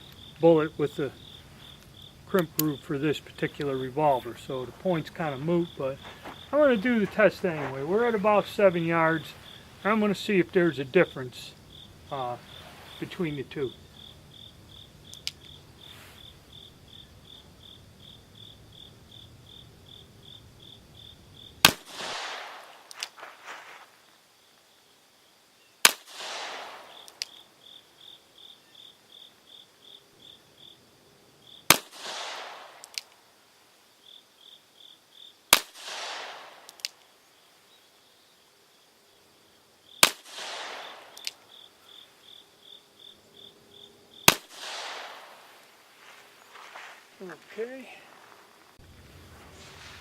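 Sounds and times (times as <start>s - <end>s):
insects chirping: 0.0s - 50.0s
revolver shots: 21.6s - 23.2s, 25.8s - 27.4s, 31.7s - 33.1s, 35.6s - 37.0s, 40.0s - 41.4s, 44.2s - 45.7s.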